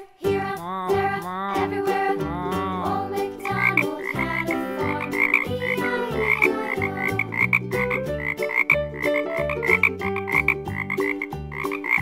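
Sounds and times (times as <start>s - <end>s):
bouncy cartoon music: 0.0s - 12.0s
frog croak sounds: 3.4s - 12.0s.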